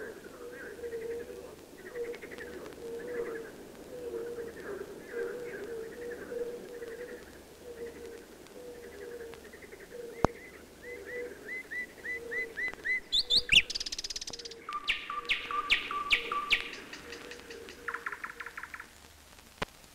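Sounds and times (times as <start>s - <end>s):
birdsong chirps and trills: 8.8s - 18.9s.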